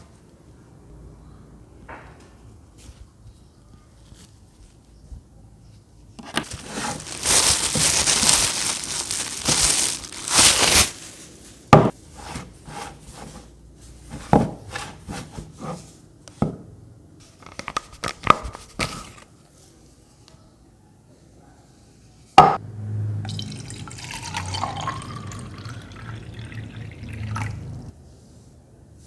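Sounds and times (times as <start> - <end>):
plastic packaging crinkling: 6.2 - 11.7.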